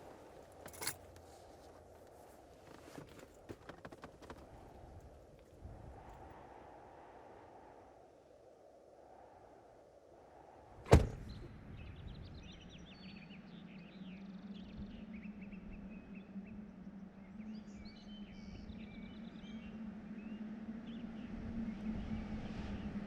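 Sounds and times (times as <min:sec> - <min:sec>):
door shutting: 0:10.9 - 0:11.5.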